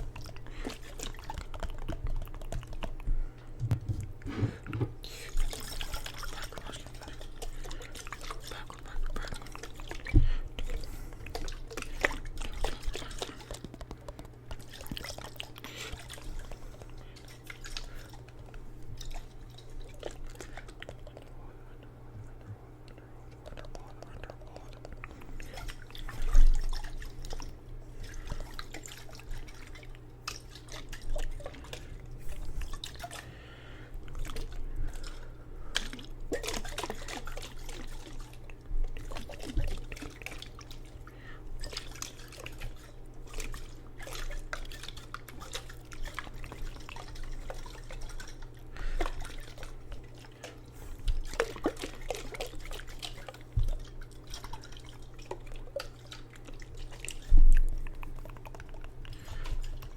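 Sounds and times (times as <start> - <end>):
steady low hum: 0.0 - 59.9
water dripping and splashing: 25.4 - 31.8, 41.6 - 59.9.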